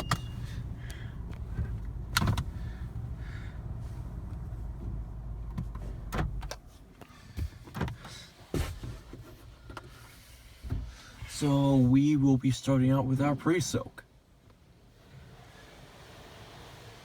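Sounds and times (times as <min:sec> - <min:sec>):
car engine rumble: 0:00.0 - 0:12.2
car control clicks and knocks: 0:00.9 - 0:02.6.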